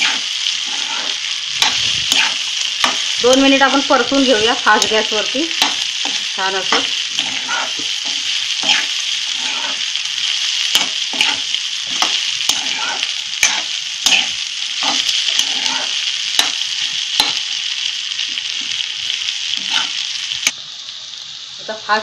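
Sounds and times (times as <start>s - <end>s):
dough frying in hot oil: 0.0s - 22.0s
spatula striking pan: 1.6s - 3.2s, 4.7s - 9.7s, 10.7s - 17.5s.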